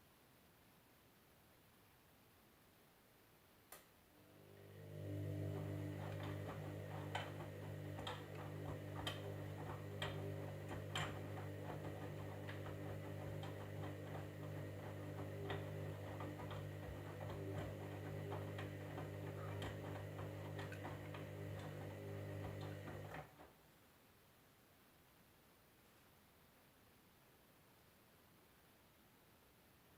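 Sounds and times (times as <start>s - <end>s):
washing machine humming: 4.2s - 23.5s.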